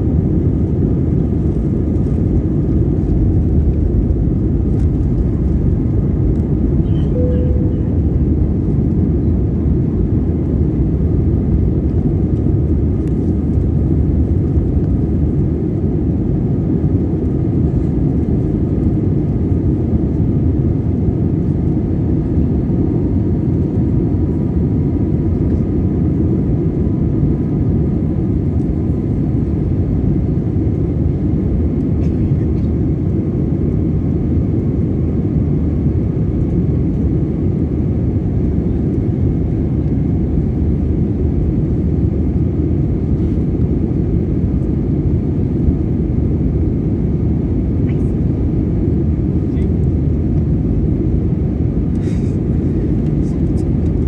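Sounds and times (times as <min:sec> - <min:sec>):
airplane cabin engine rumble: 0:00.0 - 0:54.0
faint steady whining tones: 0:04.7 - 0:09.2.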